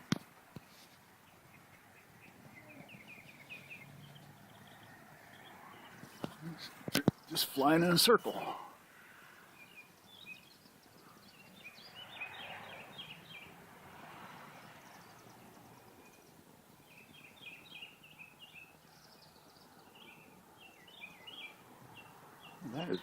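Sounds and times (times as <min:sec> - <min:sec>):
swifts chittering: 0:09.4 - 0:13.6.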